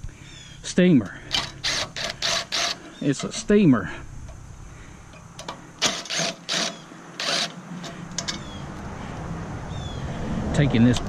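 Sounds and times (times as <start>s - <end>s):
metal parts scraping: 1.2s - 4.4s, 5.1s - 8.6s.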